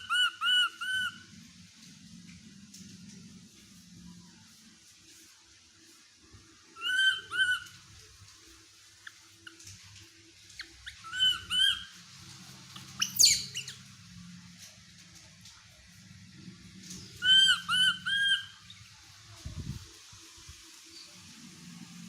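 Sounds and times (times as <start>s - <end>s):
baby monkey squeaky cries: 0.0s - 1.2s, 6.8s - 7.7s, 10.6s - 12.0s, 13.0s - 13.8s, 17.2s - 18.6s.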